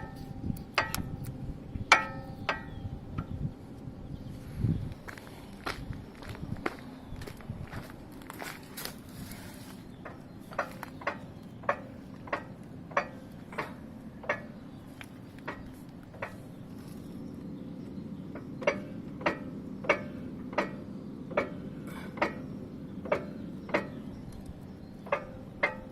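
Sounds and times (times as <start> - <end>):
steady low hum: 0.0 - 25.9
wheel knocking: 10.0 - 16.6, 18.3 - 25.9.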